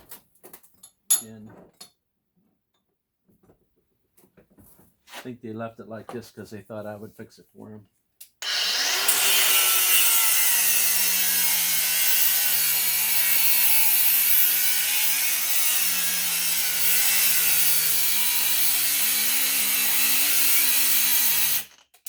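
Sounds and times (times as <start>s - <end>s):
power saw cutting metal: 8.4s - 21.8s.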